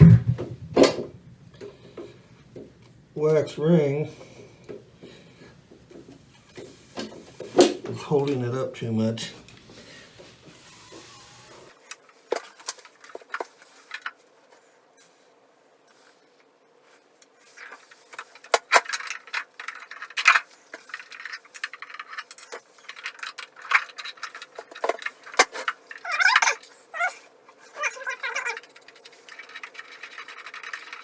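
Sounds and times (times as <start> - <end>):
parts and tools clicking and knocking: 17.6 - 26.8, 27.5 - 31.0.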